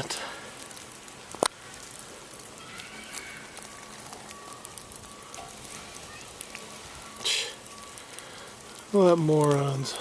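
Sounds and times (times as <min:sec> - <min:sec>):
meltwater dripping: 0:00.0 - 0:10.0.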